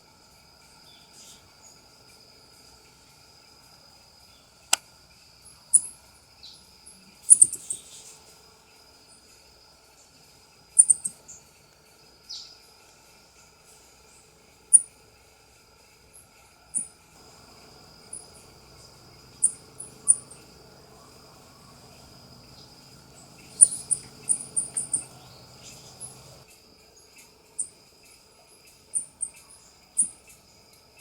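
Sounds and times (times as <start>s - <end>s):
coati high-pitched chirps: 7.2s - 8.1s, 10.8s - 11.2s, 16.8s - 26.5s, 28.9s - 30.4s.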